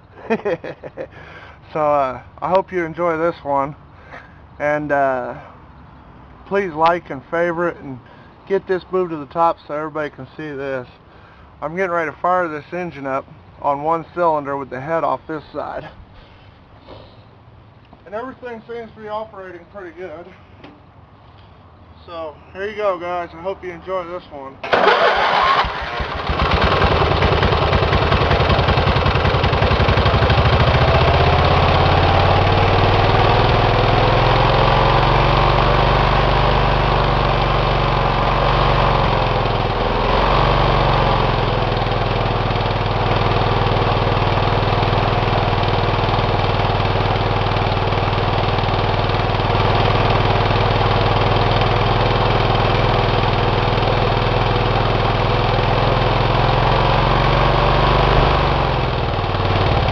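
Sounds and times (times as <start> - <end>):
small engine running: 24.6 - 59.9.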